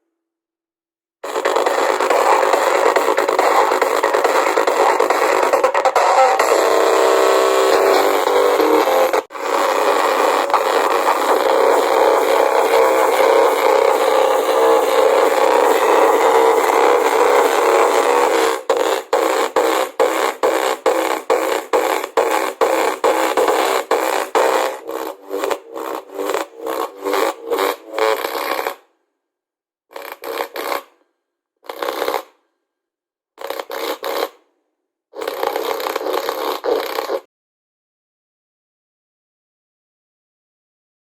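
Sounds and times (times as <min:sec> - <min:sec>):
music from small portable speaker: 0:01.2 - 0:28.8.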